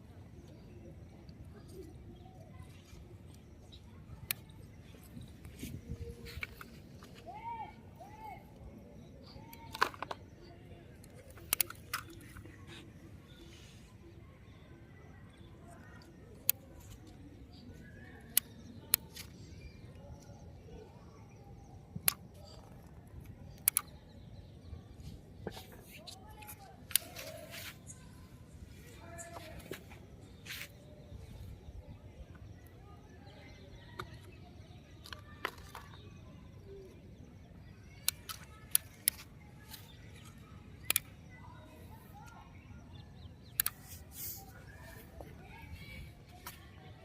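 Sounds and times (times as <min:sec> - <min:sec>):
faint outdoor background: 0:00.0 - 0:47.0
sharp short clicks: 0:23.5 - 0:24.0, 0:43.4 - 0:44.6.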